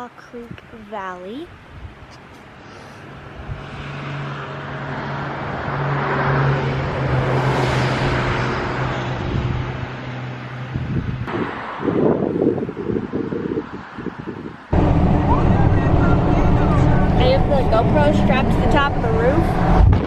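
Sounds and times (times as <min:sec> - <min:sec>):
vehicle engine hum: 0:01.8 - 0:11.9, 0:12.6 - 0:20.0
wind gust on microphone: 0:03.2 - 0:20.0
tyre and wind noise: 0:10.6 - 0:15.0, 0:18.6 - 0:20.0.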